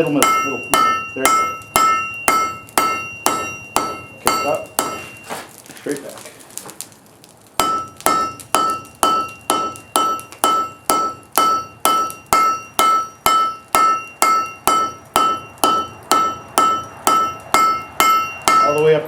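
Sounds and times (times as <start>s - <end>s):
hammer ringing on anvil: 0.0s - 5.3s, 7.6s - 19.0s.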